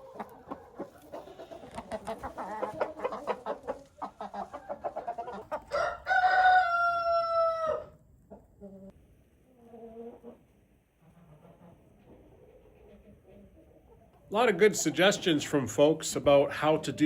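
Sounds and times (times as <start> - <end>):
chicken long drawn-out call: 0.0 - 8.0
chickens clucking: 0.0 - 17.0.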